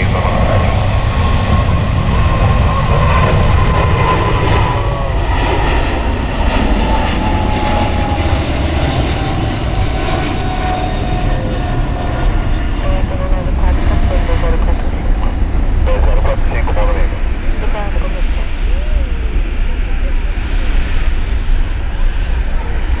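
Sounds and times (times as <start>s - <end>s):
jet engine whine: 0.0s - 23.0s
jet engines rumbling: 0.0s - 23.0s.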